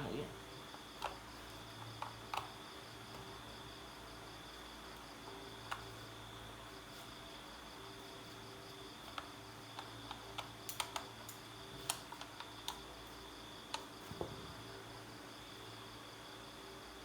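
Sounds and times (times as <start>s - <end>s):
crickets chirring: 0.0s - 17.0s
small tools clicking and tapping: 1.0s - 3.3s, 9.1s - 12.9s.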